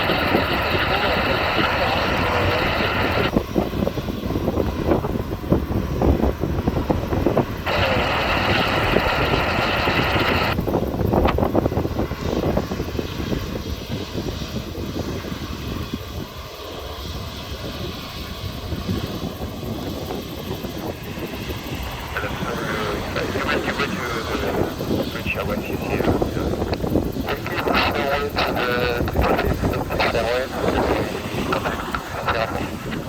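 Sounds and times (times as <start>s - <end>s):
air-band radio sound: 0.0s - 3.4s, 7.6s - 10.6s, 21.4s - 33.0s
jet engines rumbling: 0.0s - 33.0s.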